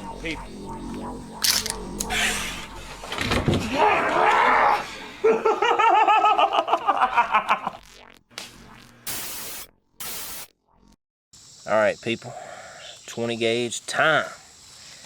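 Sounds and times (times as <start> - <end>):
person laughing: 5.2 - 7.8.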